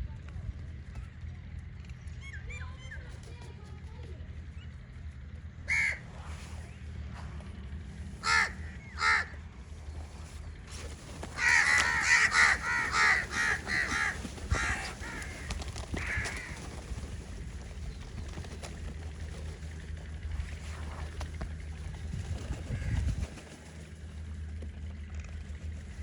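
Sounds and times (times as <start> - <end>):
crows cawing: 5.7 - 6.0, 8.2 - 9.4, 11.2 - 17.1.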